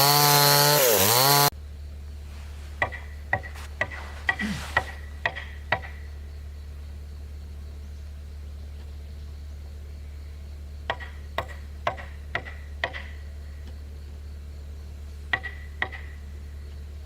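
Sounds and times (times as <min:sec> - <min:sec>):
hammer striking chisel into wood: 0:02.8 - 0:05.9, 0:10.9 - 0:13.1, 0:15.3 - 0:16.1.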